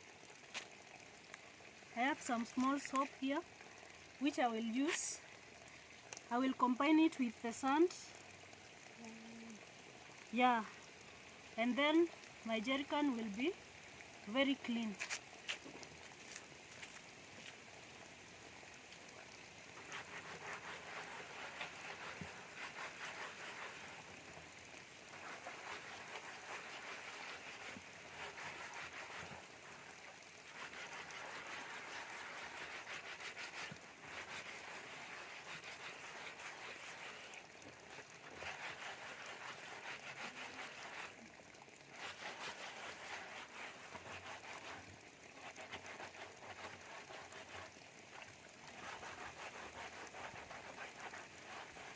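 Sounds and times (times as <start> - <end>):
gritty scrubbing of plastic: 19.8 - 24.1, 25.0 - 41.3, 41.9 - 51.9.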